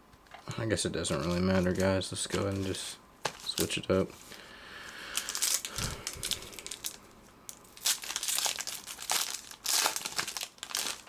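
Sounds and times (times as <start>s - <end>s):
wrapper crinkling and tearing: 5.1s - 11.0s.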